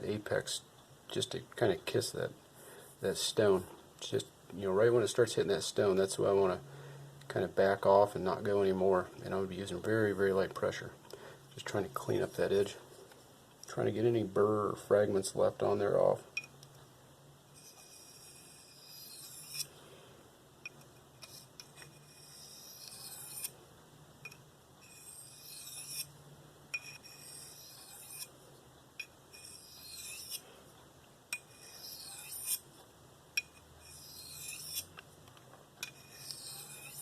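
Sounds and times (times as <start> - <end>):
knife scraping on whetstone: 17.6 - 19.7, 21.2 - 23.6, 24.8 - 26.1, 26.8 - 28.3, 29.3 - 30.4, 31.4 - 32.6, 33.4 - 34.9, 35.8 - 37.0.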